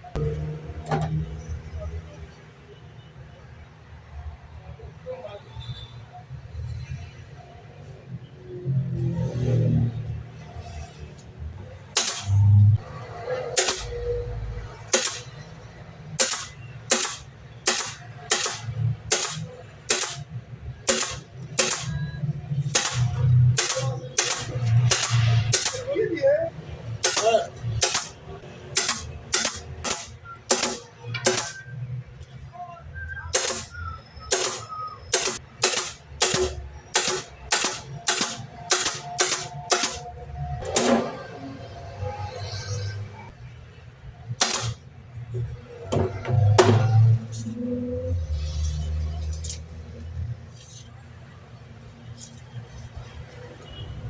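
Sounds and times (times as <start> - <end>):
nails driven into wood: 12.0 - 12.6, 13.6 - 14.0, 14.9 - 15.4, 16.2 - 20.3, 20.9 - 22.0, 22.7 - 25.9, 27.0 - 28.2, 28.8 - 31.6, 33.3 - 33.7, 34.3 - 40.0, 44.4 - 44.8
sharp strikes on wood: 12.0 - 12.6, 16.2 - 20.2, 20.9 - 22.0, 27.0 - 28.2, 34.3 - 40.0, 44.4 - 44.8.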